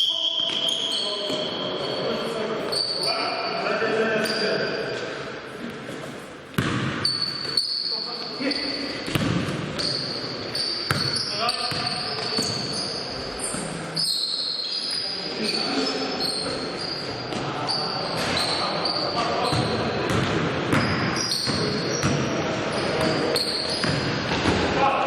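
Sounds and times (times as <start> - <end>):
sneaker squeaks on floor: 0.0 - 3.6, 4.2 - 5.3, 6.0 - 24.1
players' voices: 0.0 - 7.0, 7.6 - 25.0
basketball bouncing on court: 6.5 - 7.7, 8.9 - 12.8, 19.2 - 24.7.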